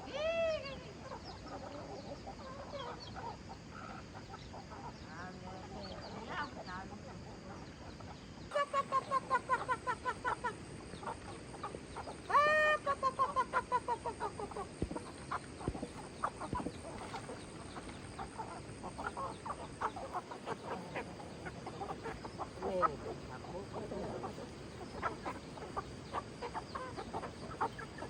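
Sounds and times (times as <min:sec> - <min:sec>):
chickens clucking: 0:00.7 - 0:28.0
chicken drawn-out call: 0:12.3 - 0:15.5.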